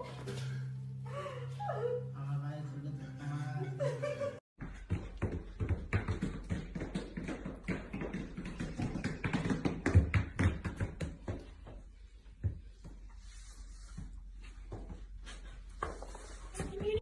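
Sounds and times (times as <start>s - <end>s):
rapid tapping and knocking: 4.6s - 11.8s.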